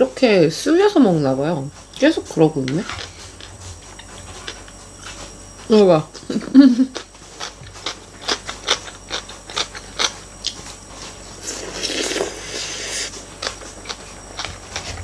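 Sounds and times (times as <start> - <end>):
wet chewing: 2.7 - 5.4, 6.2 - 15.0.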